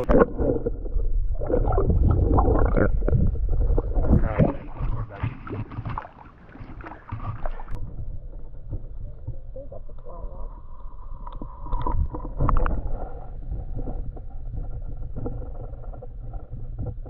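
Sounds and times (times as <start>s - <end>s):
wind on microphone: 0.0s - 5.9s
water splashing and sloshing: 0.0s - 17.0s.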